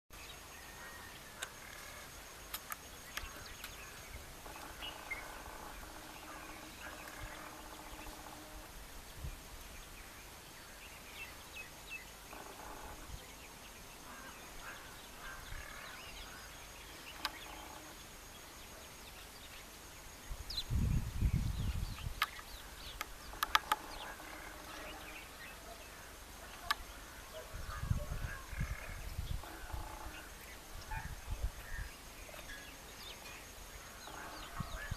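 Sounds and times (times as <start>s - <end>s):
birds chirping: 0.1s - 34.9s
steady background hiss: 0.2s - 34.9s
sharp clicks: 2.5s - 3.8s, 17.1s - 17.8s, 22.0s - 24.9s.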